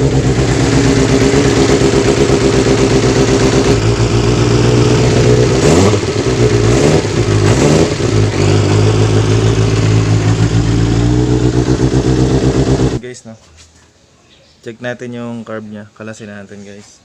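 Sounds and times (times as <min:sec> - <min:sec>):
motorcycle engine revving and idling: 0:00.0 - 0:13.0.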